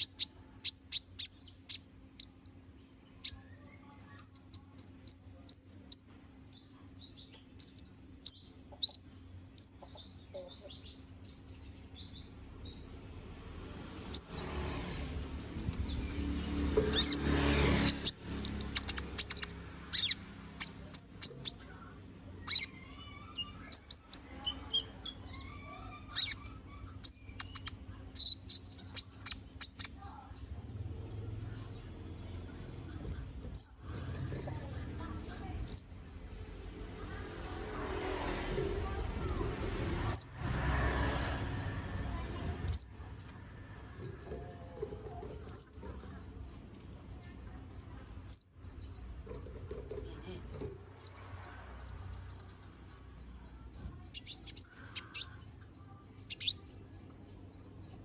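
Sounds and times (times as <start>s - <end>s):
sunbird chirping and trilling: 0.0s - 30.4s, 33.5s - 34.0s, 35.0s - 36.4s, 38.8s - 40.5s, 42.2s - 43.1s, 50.5s - 52.6s, 53.7s - 56.9s.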